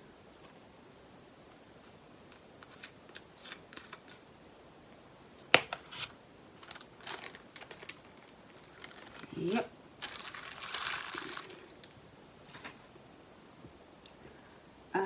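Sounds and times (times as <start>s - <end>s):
plastic bags rustling: 5.7s - 13.0s.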